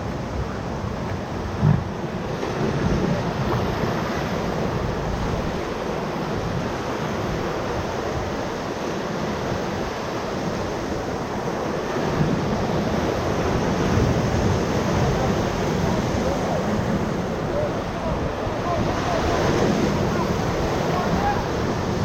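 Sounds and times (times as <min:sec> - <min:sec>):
whitewater rushing: 0:00.0 - 0:22.0.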